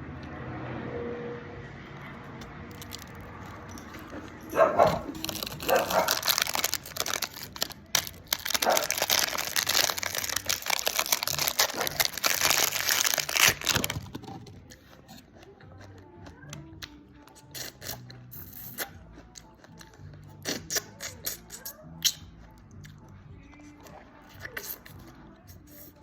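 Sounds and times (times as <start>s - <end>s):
crinkling and crackling: 2.3s - 16.6s.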